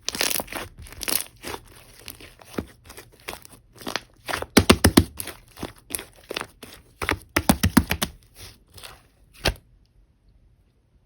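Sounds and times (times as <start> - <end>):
slime popping and crackling: 0.0 - 8.2.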